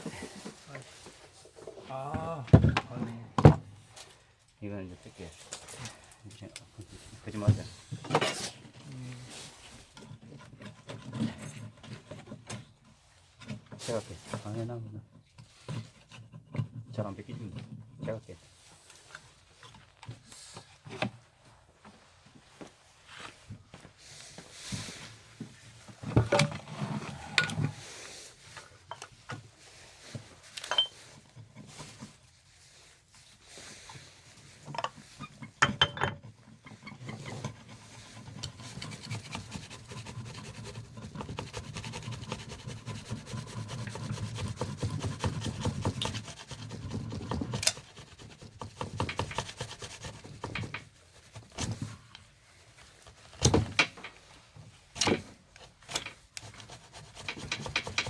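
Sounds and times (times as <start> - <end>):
rubbing and scraping on metal parts: 25.7 - 58.0.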